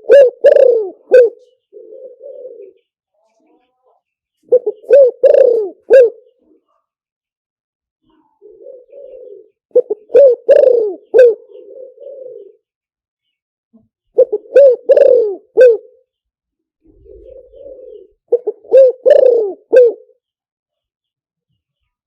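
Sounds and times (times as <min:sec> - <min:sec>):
dove cooing: 0:00.0 - 0:02.9, 0:04.5 - 0:06.6, 0:08.1 - 0:12.7, 0:14.2 - 0:16.0, 0:16.8 - 0:20.2.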